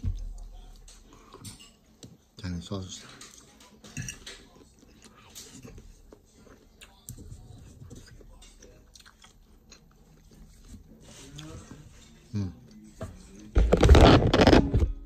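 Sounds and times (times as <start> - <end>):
person chewing food: 4.6 - 11.5.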